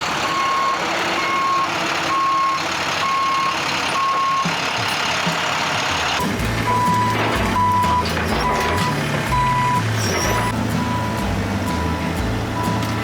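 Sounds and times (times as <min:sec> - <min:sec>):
heavy machine running: 0:00.0 - 0:13.0
backup alarm beeping: 0:00.2 - 0:04.5, 0:06.2 - 0:12.0.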